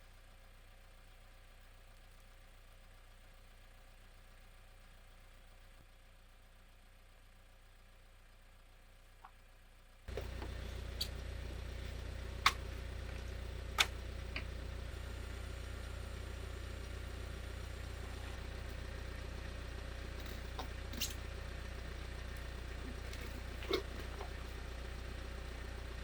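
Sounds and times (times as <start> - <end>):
engine idling: 0.0 - 26.0
sharp clicks: 13.8 - 14.5.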